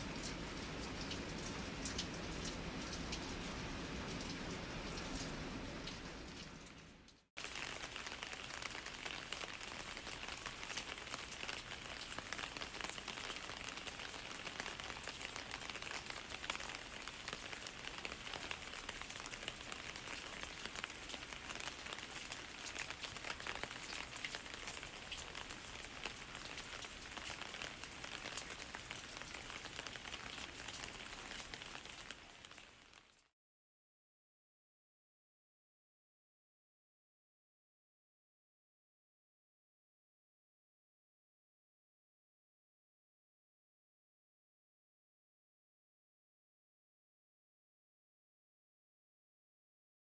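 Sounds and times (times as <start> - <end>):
steady rain with ticking drops: 0.0 - 33.3.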